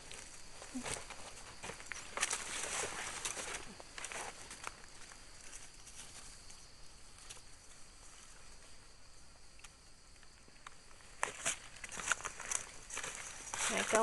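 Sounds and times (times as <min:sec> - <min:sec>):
footsteps on dry leaves: 0:11.2 - 0:14.0.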